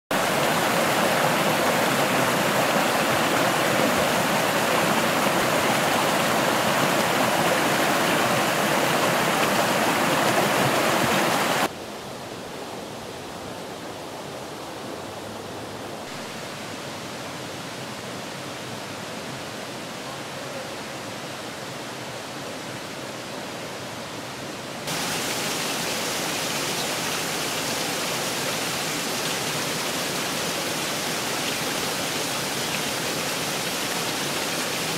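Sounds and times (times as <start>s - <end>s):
river water rushing: 0.1s - 34.9s.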